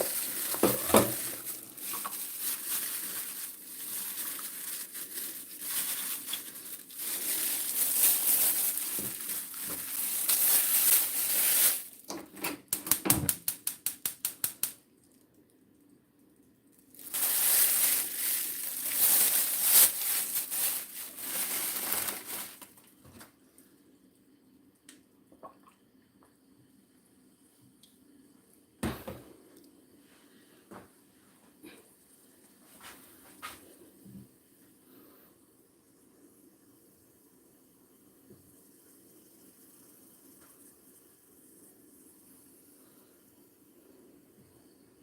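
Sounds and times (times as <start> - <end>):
rustling and scraping: 0.0 - 11.8, 17.0 - 23.2.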